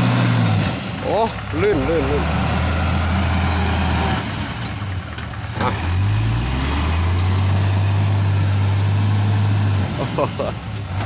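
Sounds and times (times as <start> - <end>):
diesel engine revving: 0.0 - 11.0.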